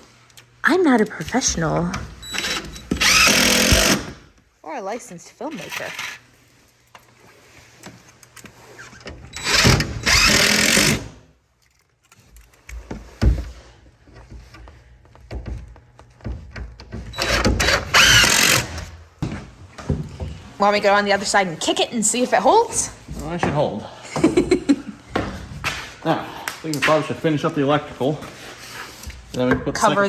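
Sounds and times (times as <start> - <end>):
power driver driving screws: 2.2 - 4.2, 9.3 - 11.2, 17.1 - 19.0.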